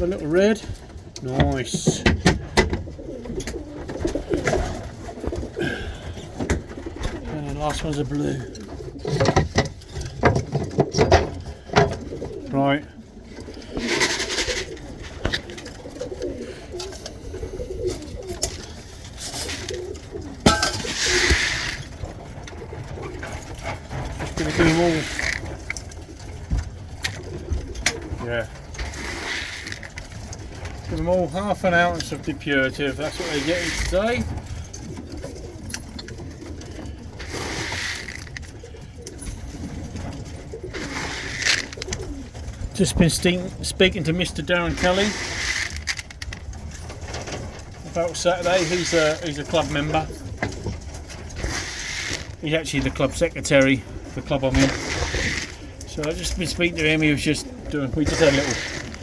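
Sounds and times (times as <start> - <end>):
pigeons cooing: 0.0 - 59.0
rustling bursts: 13.2 - 30.9, 33.0 - 59.0.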